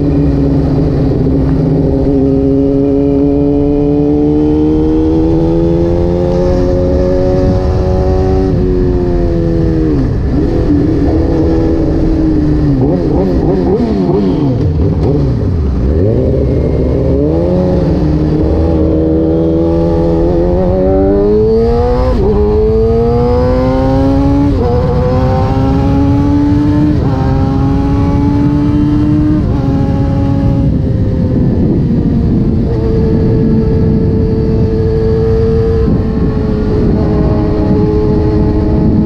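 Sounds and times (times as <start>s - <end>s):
motorcycle engine revving and upshifting: 0.0s - 39.0s.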